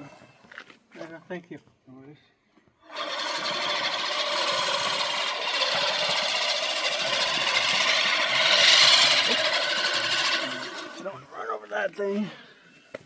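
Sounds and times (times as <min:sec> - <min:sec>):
lawn mower running: 0:02.9 - 0:11.1.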